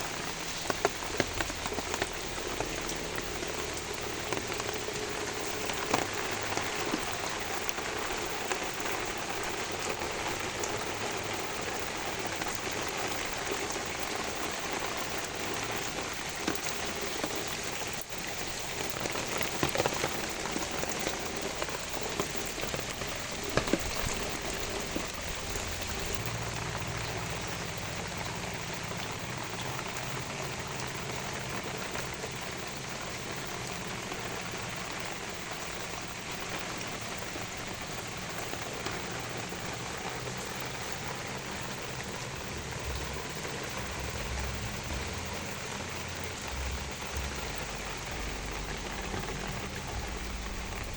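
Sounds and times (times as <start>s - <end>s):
rain falling on plants: 0.0s - 50.9s
water drops landing close: 13.9s - 28.5s.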